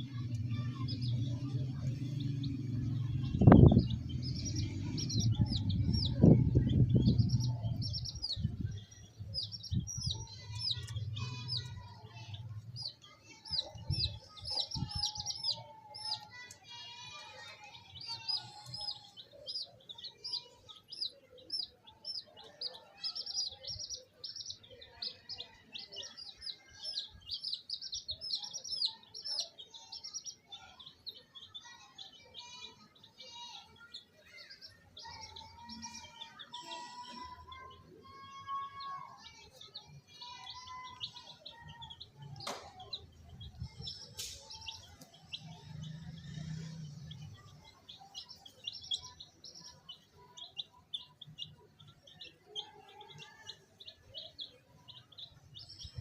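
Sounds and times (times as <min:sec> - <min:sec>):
baby chicks peeping: 0:00.0 - 0:56.0
low rumble with thumps: 0:00.4 - 0:07.9.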